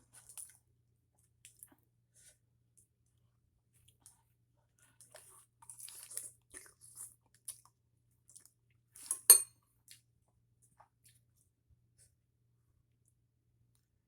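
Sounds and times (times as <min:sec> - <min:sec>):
chewing crunches and wet clicks: 0:01.2 - 0:01.8, 0:03.8 - 0:09.1, 0:09.8 - 0:11.4.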